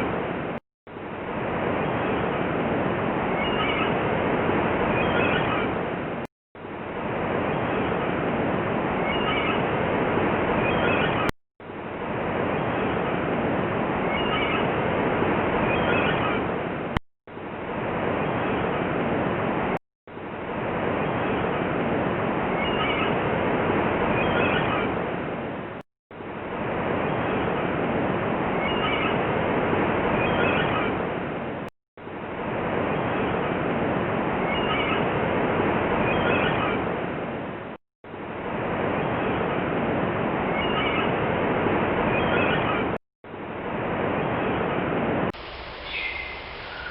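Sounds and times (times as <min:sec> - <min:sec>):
high bird calls: 0:03.4 - 0:04.0, 0:05.0 - 0:05.7, 0:09.0 - 0:09.7, 0:14.1 - 0:14.7, 0:22.6 - 0:23.2, 0:28.6 - 0:29.2, 0:45.4 - 0:46.9.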